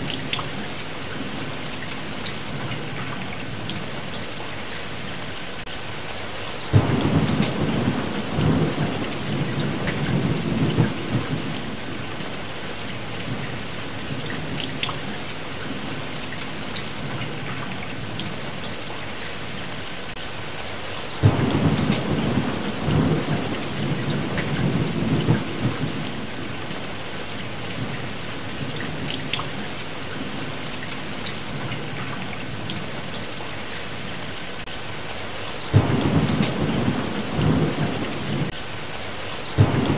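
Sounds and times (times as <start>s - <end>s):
steady rain: 0.0s - 39.9s
thunder claps: 6.7s - 12.1s, 21.2s - 26.7s, 35.7s - 38.6s, 39.6s - 39.9s.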